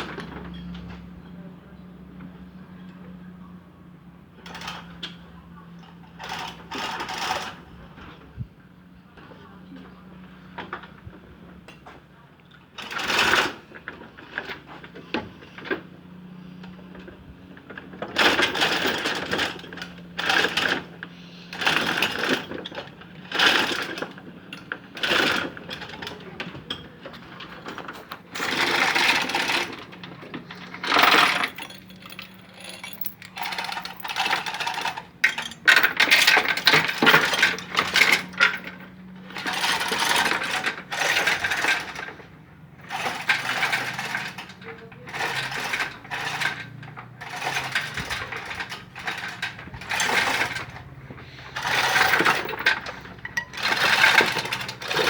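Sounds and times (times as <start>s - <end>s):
metal clinking and rattling: 21.5s - 42.1s, 42.9s - 55.0s.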